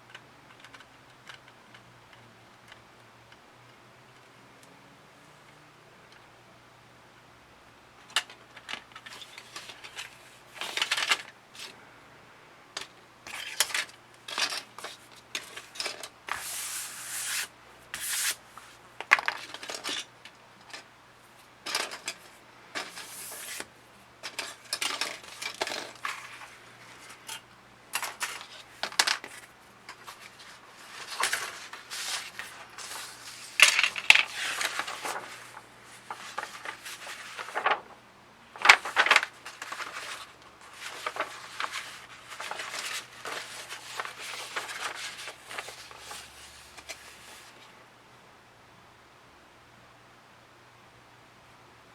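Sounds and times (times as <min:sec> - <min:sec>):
clicks and taps of plastic parts: 0:00.0 - 0:03.4.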